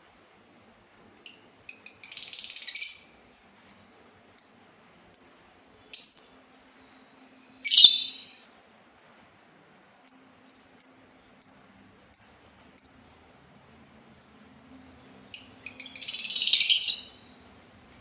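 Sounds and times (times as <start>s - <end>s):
songbird chirping: 1.3s - 8.5s, 10.1s - 13.3s, 15.3s - 17.4s.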